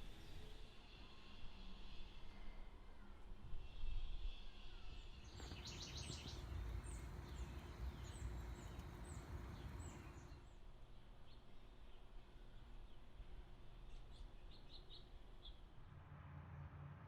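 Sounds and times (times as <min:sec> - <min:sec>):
low steady background rumble: 0:00.0 - 0:17.0
bird trill: 0:04.3 - 0:10.4.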